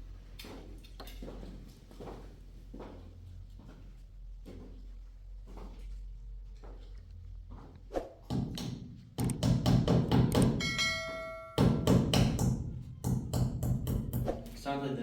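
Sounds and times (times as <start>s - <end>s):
sharp knocks and taps: 8.3s - 10.6s
ringing bell-like tone: 10.6s - 11.8s.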